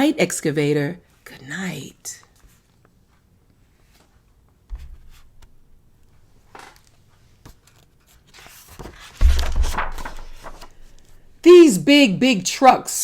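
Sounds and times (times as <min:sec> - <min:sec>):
paper pages rustling: 0:06.4 - 0:11.3
book thump: 0:08.7 - 0:10.8.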